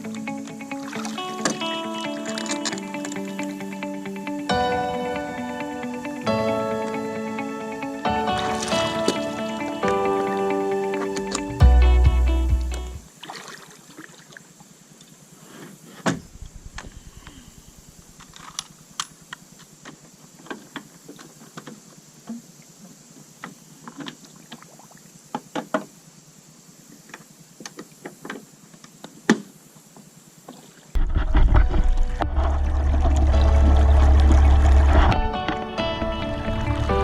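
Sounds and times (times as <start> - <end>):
water splashes and drips: 0.7 - 2.8, 13.0 - 15.2, 20.5 - 25.7, 31.8 - 35.3.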